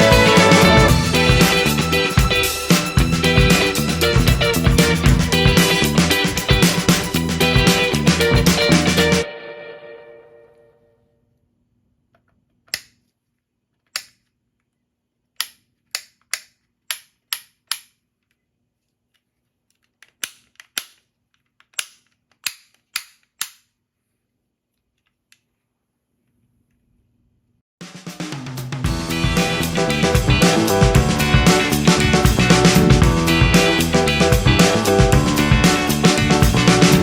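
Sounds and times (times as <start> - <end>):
sharp plastic clicks: 13.8 - 14.4, 15.3 - 18.1, 19.7 - 23.8.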